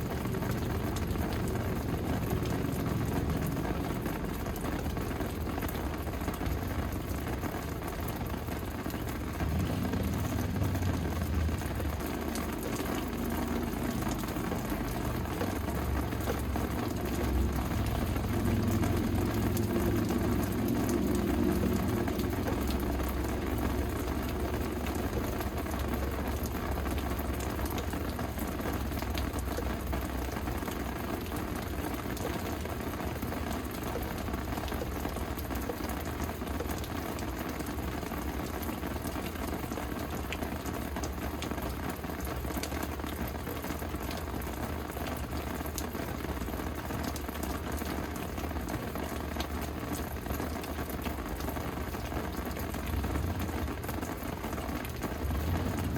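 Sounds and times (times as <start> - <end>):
rain pattering: 0.0 - 55.9
low rumble: 8.6 - 26.9, 52.9 - 55.9.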